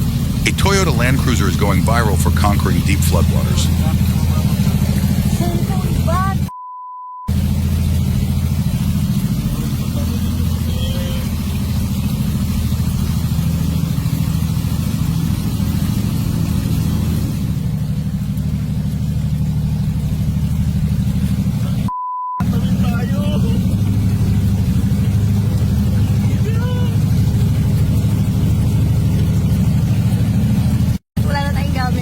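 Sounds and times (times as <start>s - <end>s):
constant hiss: 0.0s - 6.4s
vehicle engine droning: 0.0s - 6.5s, 7.3s - 32.0s
short pure beep tone: 6.5s - 7.3s, 21.9s - 22.4s.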